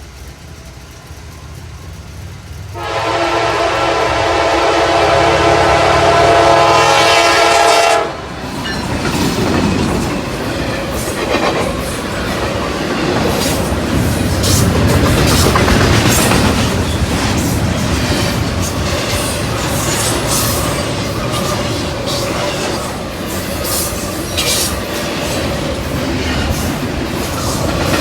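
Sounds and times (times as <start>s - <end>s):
train wheels rumbling on rails: 0.0s - 28.0s
clacking over rail joints: 8.4s - 28.0s.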